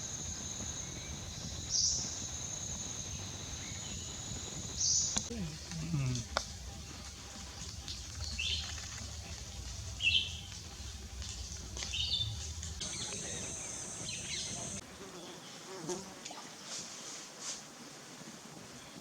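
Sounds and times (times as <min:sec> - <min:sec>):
high hiss: 0:00.0 - 0:07.3, 0:10.0 - 0:14.8
birds chirping: 0:00.0 - 0:15.6.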